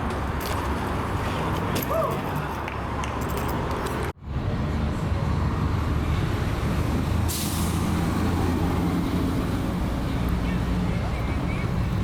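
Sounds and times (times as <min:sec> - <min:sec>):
heavy vehicle engine rumbling: 0:04.2 - 0:12.0
air brake hiss: 0:07.3 - 0:08.0.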